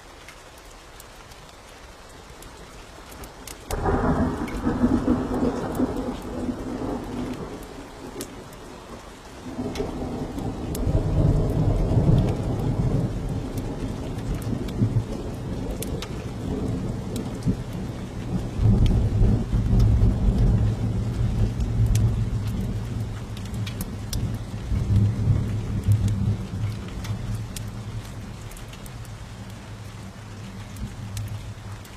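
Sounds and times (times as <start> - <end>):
fireplace fire crackling: 0.0 - 31.9
steady rain: 0.0 - 31.9
thunder rumbling: 3.7 - 31.9.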